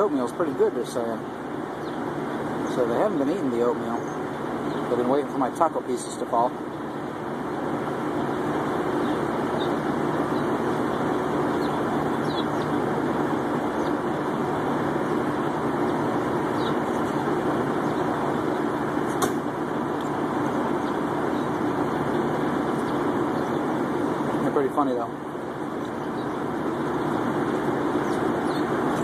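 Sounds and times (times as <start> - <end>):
vehicle engine idling: 0.0 - 29.0
sharp click: 19.1 - 19.4.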